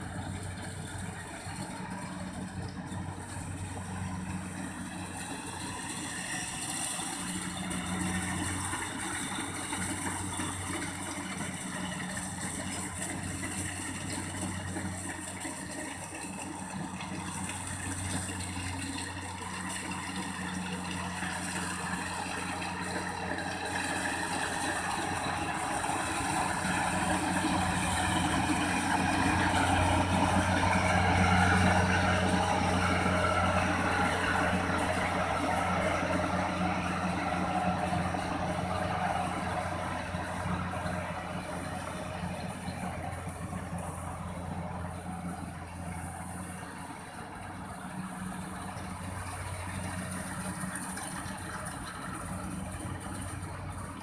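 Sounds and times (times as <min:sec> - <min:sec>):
harvester engine running: 0:00.0 - 0:54.0.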